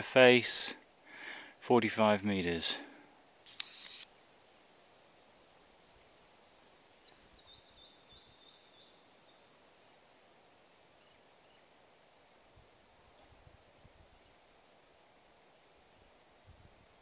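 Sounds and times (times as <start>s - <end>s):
small bird chirping: 3.5s - 4.1s, 6.3s - 14.8s.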